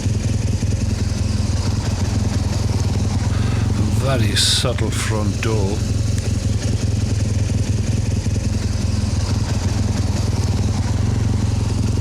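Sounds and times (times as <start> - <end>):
motorcycle engine throbbing: 3.3 - 8.9.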